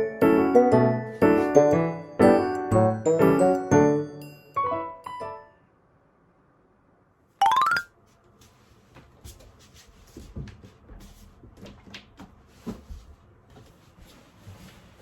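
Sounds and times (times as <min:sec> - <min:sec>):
rising chime tones: 0:07.4 - 0:07.9.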